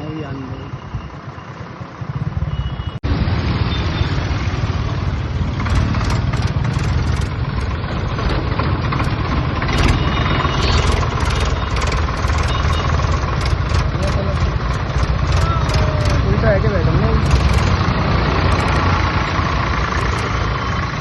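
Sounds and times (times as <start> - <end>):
tractor diesel engine running: 4.7 - 21.0.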